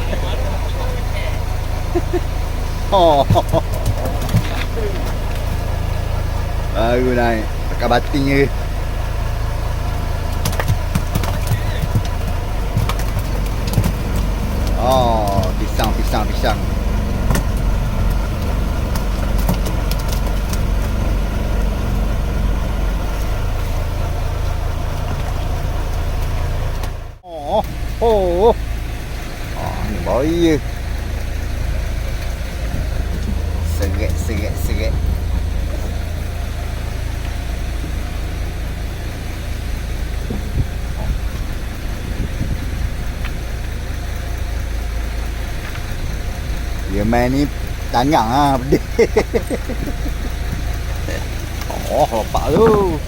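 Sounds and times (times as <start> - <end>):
boat engine idling: 0.0 - 53.0
sharp clicks: 10.3 - 14.8.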